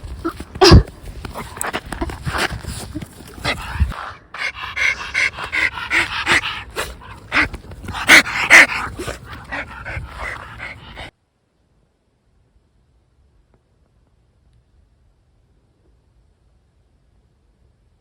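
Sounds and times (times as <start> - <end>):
dog whining and yipping: 0.0 - 3.8, 4.7 - 11.1
dog panting: 0.0 - 11.1.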